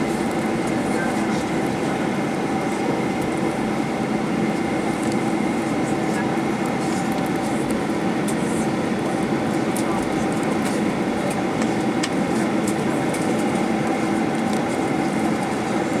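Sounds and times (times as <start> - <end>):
droning aircraft cabin noise: 0.0 - 16.0.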